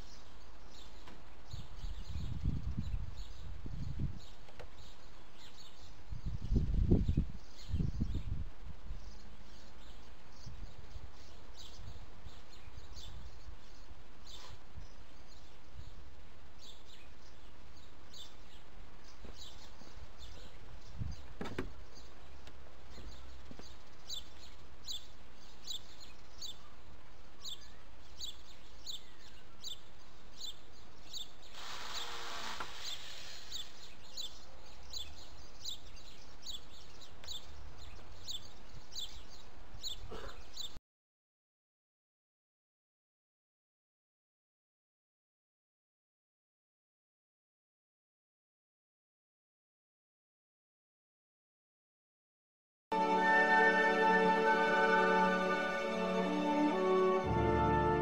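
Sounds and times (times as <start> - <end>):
small bird chirping: 16.6 - 40.8.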